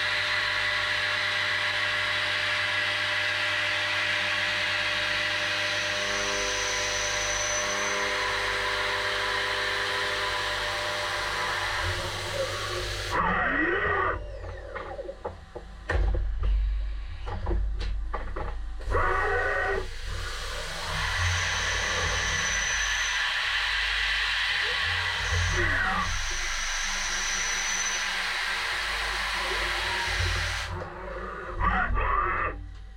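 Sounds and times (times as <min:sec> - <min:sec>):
milling machine cutting metal: 0:00.0 - 0:15.6, 0:18.8 - 0:32.6
spindle whine sweeping: 0:04.2 - 0:15.8, 0:18.4 - 0:32.9.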